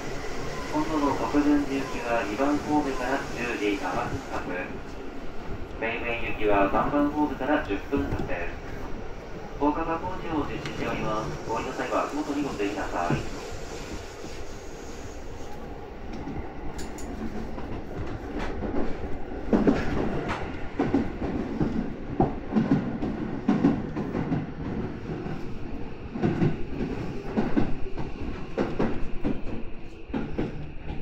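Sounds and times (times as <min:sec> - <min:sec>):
train running rumble: 0:00.0 - 0:31.0
train wheels clattering over track: 0:16.2 - 0:31.0.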